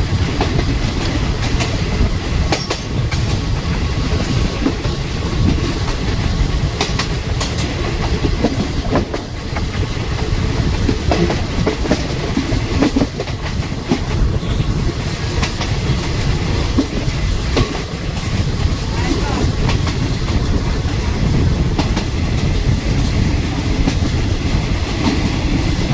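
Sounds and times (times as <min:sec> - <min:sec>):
train rumbling on board: 0:00.0 - 0:25.9
wheels clicking on track: 0:00.0 - 0:25.9.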